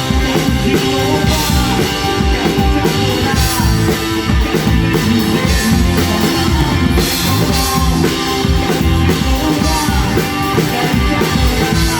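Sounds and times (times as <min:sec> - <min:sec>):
drum kit playing rock beat: 0:00.0 - 0:11.9
guitar: 0:00.0 - 0:11.9
rock worship song: 0:00.0 - 0:11.9.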